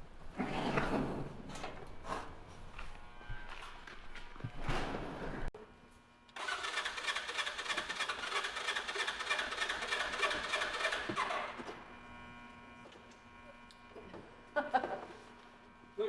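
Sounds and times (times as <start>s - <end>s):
engine cranking: 6.4s - 11.6s.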